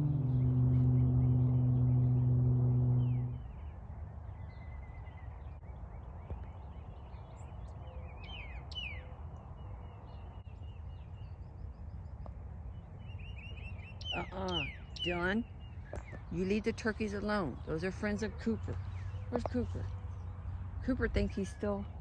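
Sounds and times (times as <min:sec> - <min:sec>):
low steady rumble: 0:00.0 - 0:05.7
steady low tone: 0:00.0 - 0:08.1
bird trill: 0:03.0 - 0:09.2, 0:13.0 - 0:18.0
bird chirps: 0:03.0 - 0:22.0.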